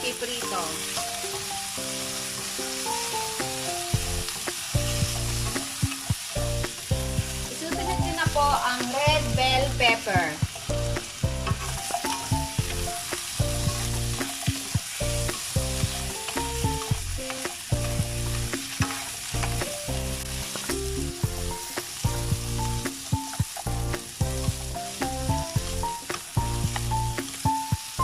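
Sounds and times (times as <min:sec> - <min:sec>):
vegetables sizzling in a pan: 0:00.0 - 0:28.0
spatula scraping and clacking: 0:11.4 - 0:15.4.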